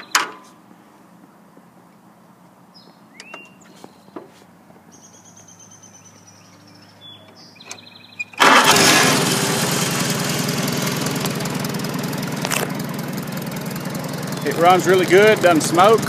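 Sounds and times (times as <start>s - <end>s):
tractor engine starting and running: 7.0s - 16.0s.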